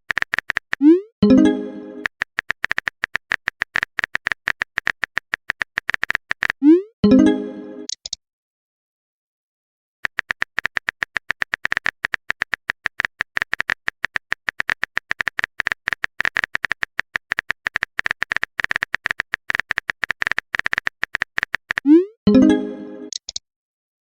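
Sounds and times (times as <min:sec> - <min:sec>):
keyboard typing clicks: 0:00.1 - 0:01.4, 0:02.0 - 0:06.7, 0:07.9 - 0:08.2, 0:10.0 - 0:22.0, 0:23.0 - 0:23.4.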